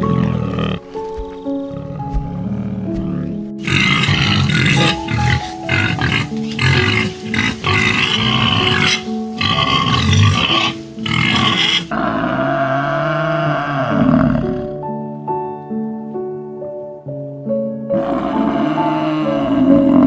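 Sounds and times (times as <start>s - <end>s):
gentle background music: 0.0s - 20.0s
animal harsh calls: 3.6s - 14.6s.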